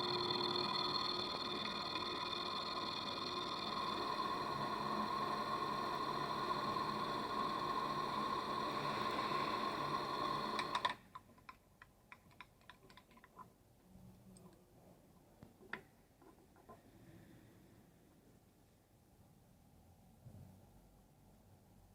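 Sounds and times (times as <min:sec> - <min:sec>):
machine tool whining: 0:00.0 - 0:11.0.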